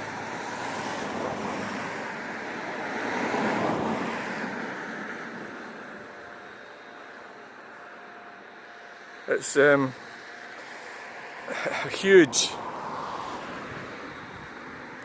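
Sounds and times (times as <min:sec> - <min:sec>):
vehicle passing: 0:09.4 - 0:15.0.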